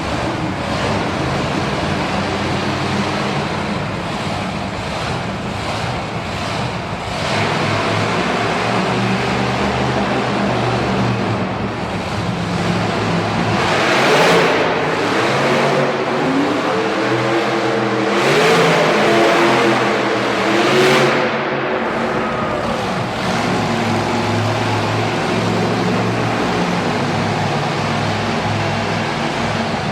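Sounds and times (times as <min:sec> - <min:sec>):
monster truck engines revving: 0:00.0 - 0:29.9.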